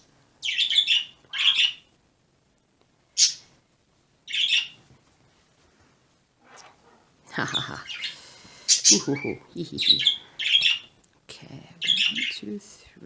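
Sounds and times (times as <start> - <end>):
pet bird calling: 0.4 - 1.8, 3.2 - 3.5, 4.3 - 4.8, 7.4 - 11.0, 11.8 - 12.4.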